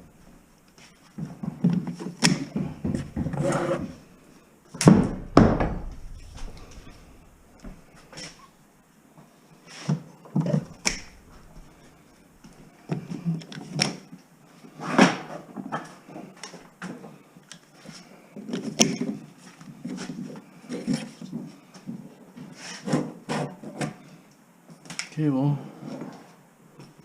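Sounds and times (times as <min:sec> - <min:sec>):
rubbing and scraping: 0:01.9 - 0:04.1
sharp clicks and knocks: 0:10.4 - 0:11.7.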